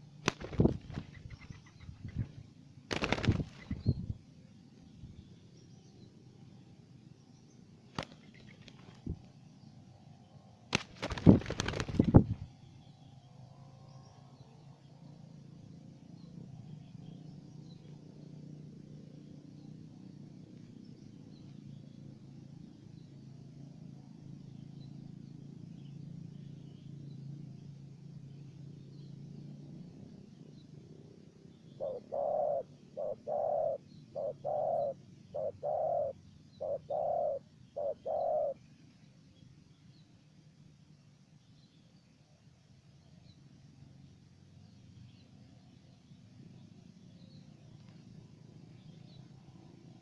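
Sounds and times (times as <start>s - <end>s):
dove cooing: 31.8s - 38.6s.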